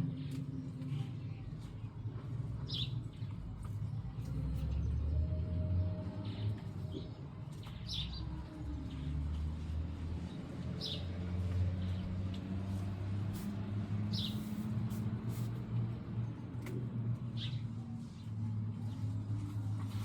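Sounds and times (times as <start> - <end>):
birds chirping: 6.2 - 9.1, 14.1 - 14.6.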